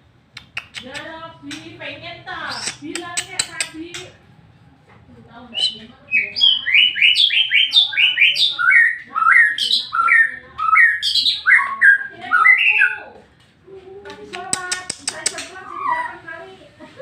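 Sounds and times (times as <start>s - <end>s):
bird singing whistled notes: 5.6s - 13.0s.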